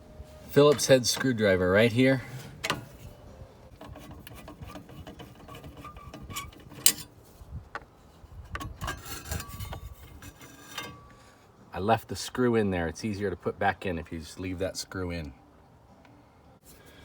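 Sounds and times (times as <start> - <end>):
screwdriver scraping and clicking: 3.8 - 7.1, 8.4 - 11.1.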